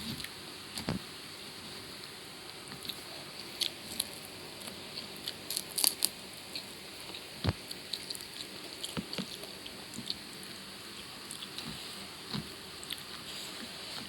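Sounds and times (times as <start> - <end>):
person chewing: 2.8 - 10.3, 10.9 - 14.0
crisp crunches: 3.6 - 6.2.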